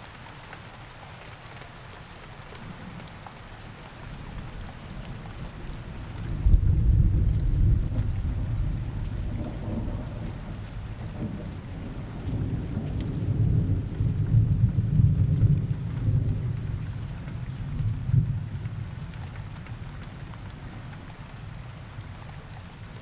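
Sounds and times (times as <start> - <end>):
steady rain hiss: 0.0 - 23.0
low rolling thunder: 4.3 - 19.1.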